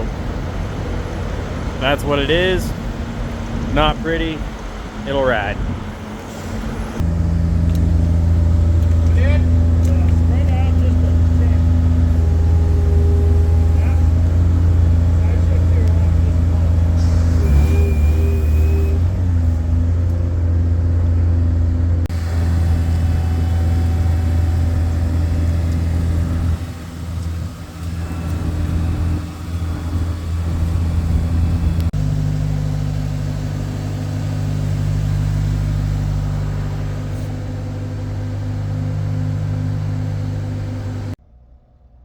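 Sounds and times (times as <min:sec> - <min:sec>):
road noise: 0:00.0 - 0:41.2
truck engine droning: 0:00.0 - 0:41.5.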